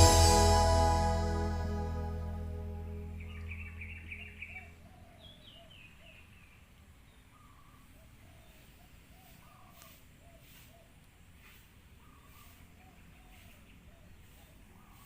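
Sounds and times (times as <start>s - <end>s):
bird calling low notes: 3.0s - 5.0s
bird chirps: 3.0s - 6.6s.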